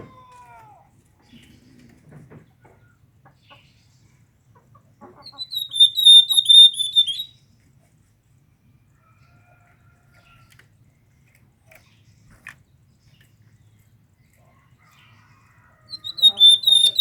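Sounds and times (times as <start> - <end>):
bird chirping rapidly: 5.3 - 7.3, 15.9 - 17.0.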